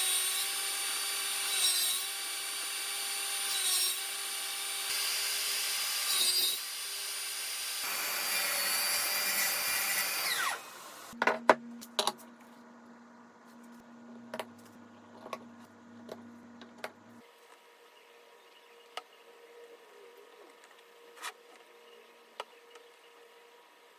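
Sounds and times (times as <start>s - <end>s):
woodworking power tool running: 0.2s - 11.2s
faint hum: 11.0s - 23.9s.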